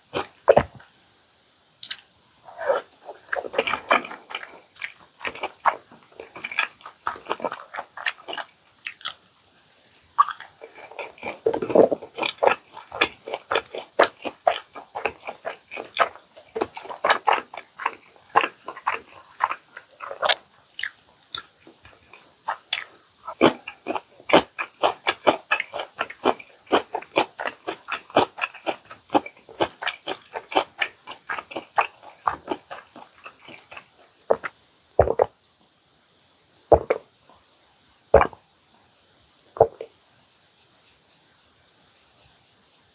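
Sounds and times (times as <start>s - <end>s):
crunching crispy food: 1.8s - 35.3s.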